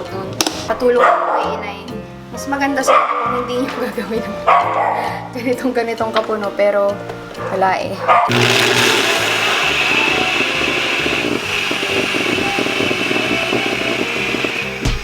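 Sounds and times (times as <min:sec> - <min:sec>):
countertop blender running: 0:08.3 - 0:15.0.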